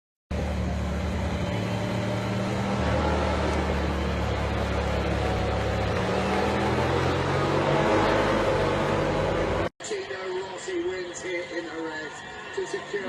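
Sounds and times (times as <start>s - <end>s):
engine running at low speed: 0.3s - 9.7s
continuous noisy background: 0.3s - 13.0s.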